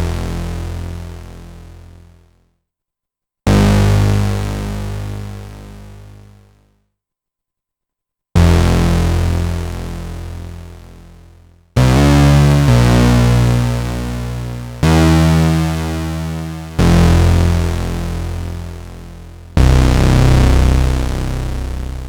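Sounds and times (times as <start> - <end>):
low synthesizer notes: 11.8 - 22.0.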